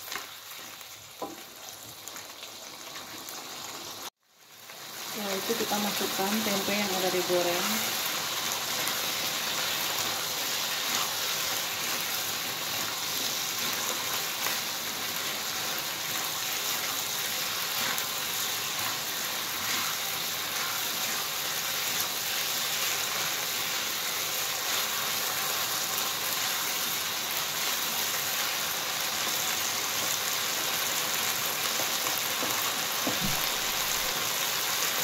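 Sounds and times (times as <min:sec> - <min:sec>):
food sizzling in a wok: 0:00.0 - 0:35.0
spatula stirring: 0:08.6 - 0:14.6, 0:15.2 - 0:25.7.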